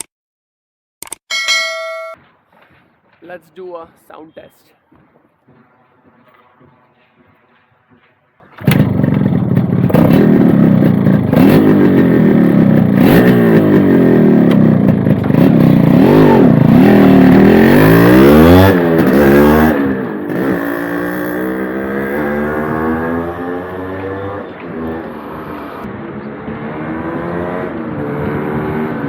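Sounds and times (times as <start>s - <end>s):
motorcycle engine revving: 8.4s - 29.0s.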